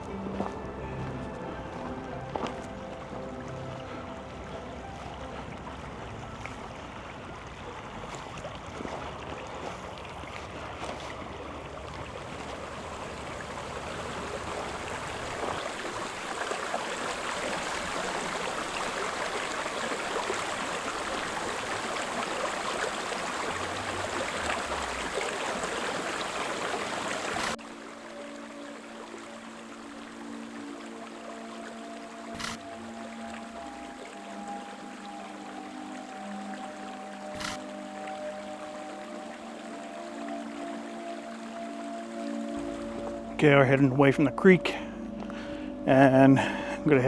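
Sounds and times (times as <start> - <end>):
creek water running: 0.0 - 47.0.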